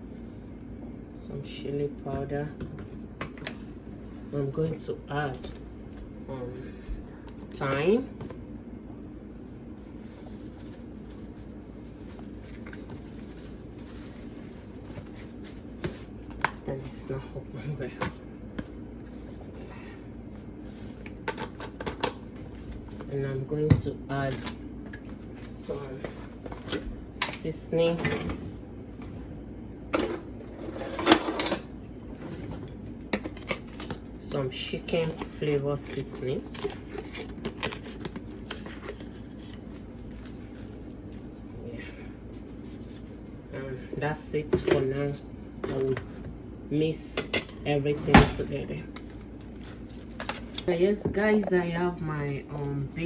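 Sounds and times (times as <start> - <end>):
low background hum: 0.0 - 53.0
rustling and scraping in a bowl: 9.7 - 23.2, 24.4 - 27.4, 30.2 - 31.5, 32.1 - 41.5, 42.3 - 43.3, 47.8 - 51.7.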